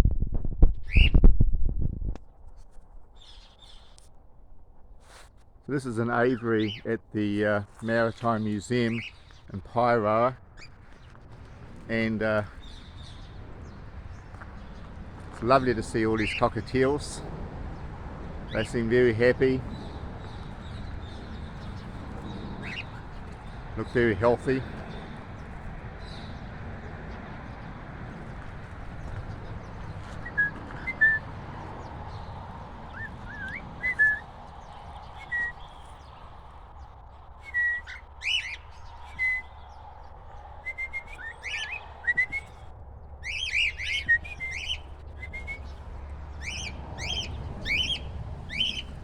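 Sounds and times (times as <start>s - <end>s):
cockatiels chirping: 3.2s - 4.1s, 6.3s - 7.0s, 7.7s - 9.5s, 10.5s - 17.2s, 18.5s - 26.5s, 28.2s - 36.3s, 37.4s - 39.7s, 40.6s - 49.0s.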